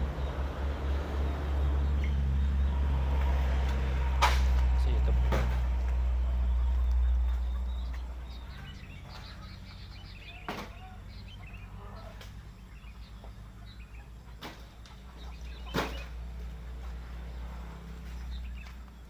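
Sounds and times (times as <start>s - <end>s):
truck diesel engine running: 0.0s - 10.4s
sharp knocks: 4.2s - 5.8s.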